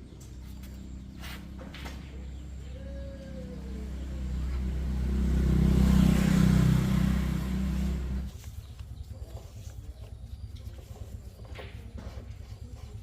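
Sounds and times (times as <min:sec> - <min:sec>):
motor vehicle engine running: 0:00.0 - 0:13.0.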